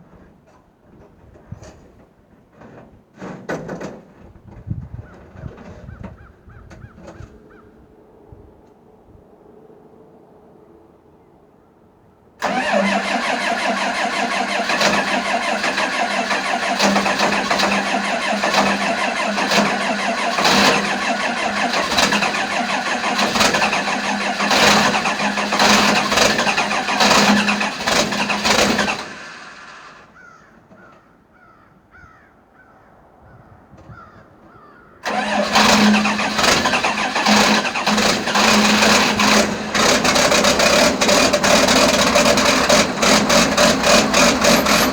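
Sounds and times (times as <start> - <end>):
diesel engine running: 12.4 - 30.1, 35.0 - 44.9.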